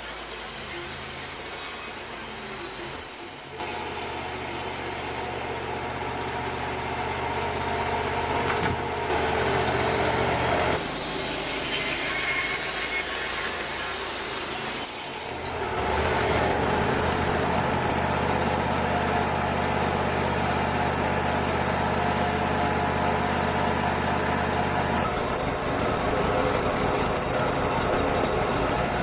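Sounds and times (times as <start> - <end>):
saw cutting wood hiss: 0.0 - 6.3, 10.8 - 15.6
sawmill engine hum: 0.0 - 29.0.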